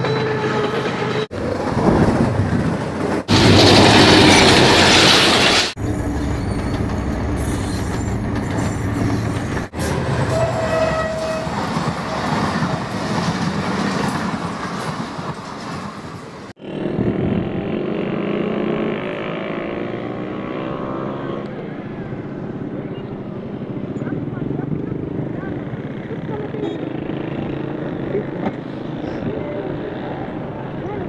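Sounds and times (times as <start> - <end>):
train wheels rolling on rails: 0.0 - 16.5
diesel locomotive engines running: 0.0 - 18.2
train horn: 10.3 - 11.6.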